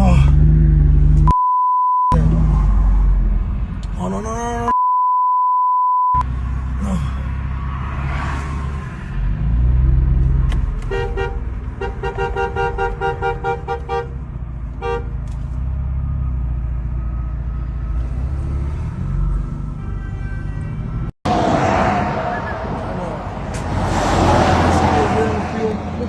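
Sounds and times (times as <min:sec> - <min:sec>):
highway traffic rumble: 0:02.2 - 0:04.7, 0:06.2 - 0:26.0
vehicle horn honking: 0:10.8 - 0:14.2, 0:14.8 - 0:15.1, 0:19.8 - 0:21.0.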